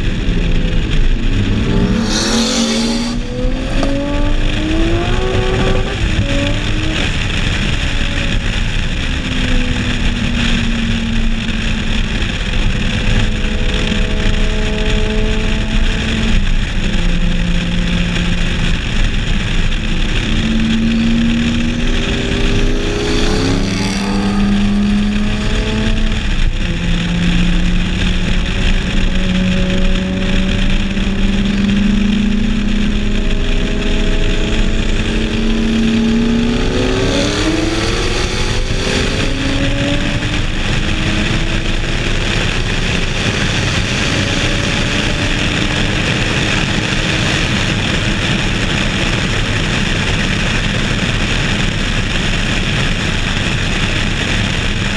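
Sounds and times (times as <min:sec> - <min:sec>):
car engines running at low revs: 0:00.0 - 0:54.9
wind and road noise: 0:00.0 - 0:54.9.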